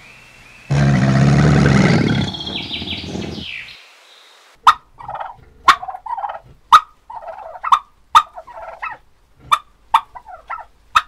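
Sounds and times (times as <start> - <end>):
turkeys gobbling: 4.6 - 11.0.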